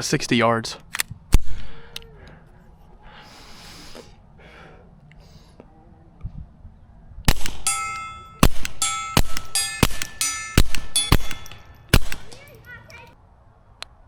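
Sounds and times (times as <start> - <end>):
suppressed pistol shots: 7.3 - 12.5
steel plate ringing: 7.5 - 12.7.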